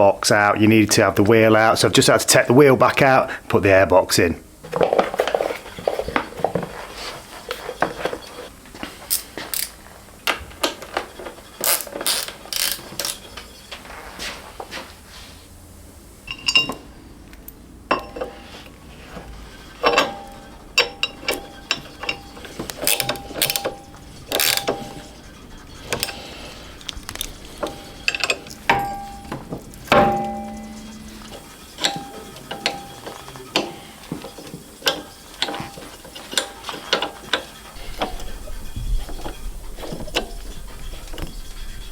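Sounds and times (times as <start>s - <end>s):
hand tools clinking on metal: 4.6s - 13.9s, 16.3s - 41.9s
ratchet clicking: 9.1s - 13.7s, 19.3s - 41.9s.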